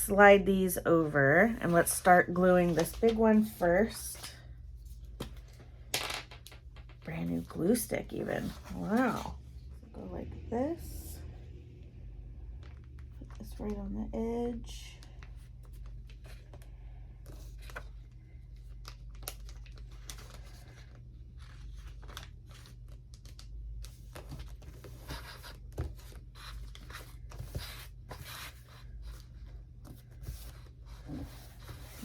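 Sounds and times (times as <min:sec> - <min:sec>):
magazine paper rustling: 0:01.7 - 0:05.6, 0:18.6 - 0:25.2
steady low hum: 0:06.6 - 0:22.8.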